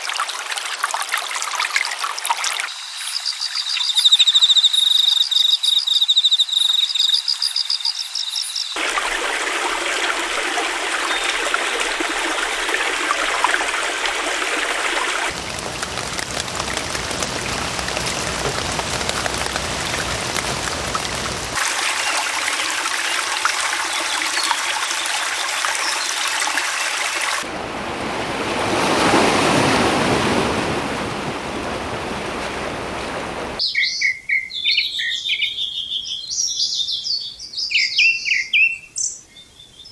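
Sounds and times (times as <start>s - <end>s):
stream water rushing: 8.8s - 33.6s.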